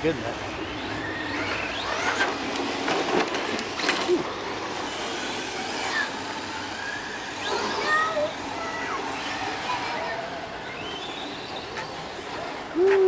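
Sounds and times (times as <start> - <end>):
rc car motor whine: 0.0 - 13.0
tyre noise on dirt: 1.2 - 5.3.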